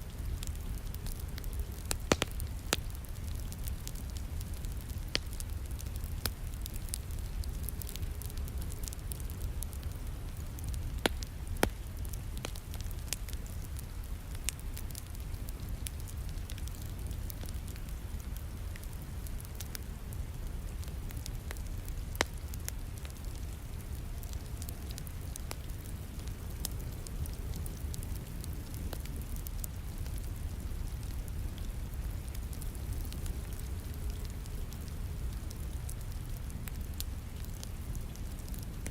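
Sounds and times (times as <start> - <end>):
fire popping: 0.0 - 38.9
wood fire crackling: 0.0 - 38.9.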